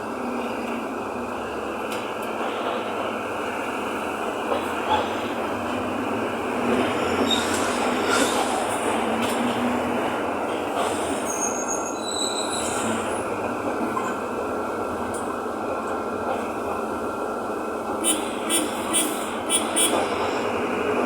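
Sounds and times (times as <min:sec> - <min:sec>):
bus engine and road noise: 0:00.0 - 0:21.0
short high squeaks: 0:11.3 - 0:12.9.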